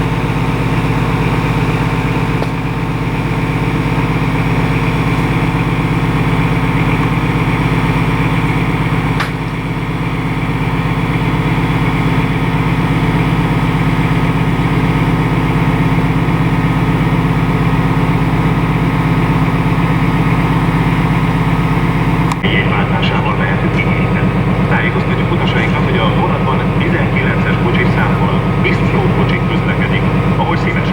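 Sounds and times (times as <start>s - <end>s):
locomotive engine humming: 0.0s - 30.9s.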